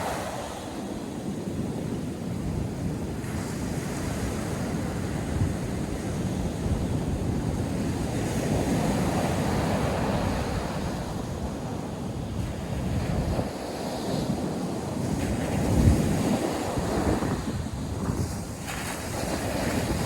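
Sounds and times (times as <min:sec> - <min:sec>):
wind buffeting microphone: 0:00.0 - 0:20.0
surf breaking on beach: 0:06.7 - 0:20.0.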